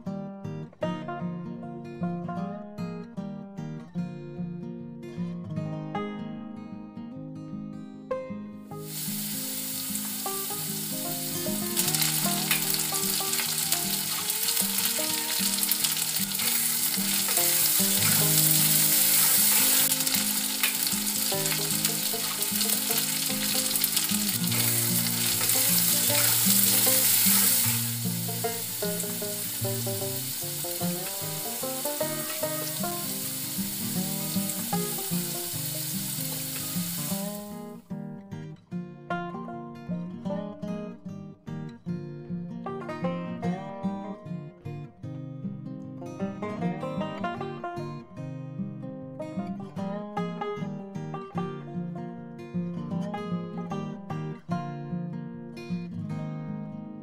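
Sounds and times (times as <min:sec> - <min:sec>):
guitar music: 0:00.0 - 0:57.0
food sizzling in a metal pan: 0:08.7 - 0:37.8
metal spatula stirring: 0:12.5 - 0:27.8.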